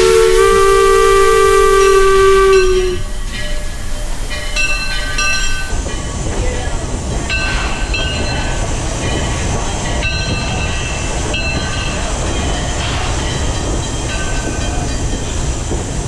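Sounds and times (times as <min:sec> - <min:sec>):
high-pitched squeals: 0:00.0 - 0:05.7
steam train rumbling on track: 0:00.0 - 0:16.0.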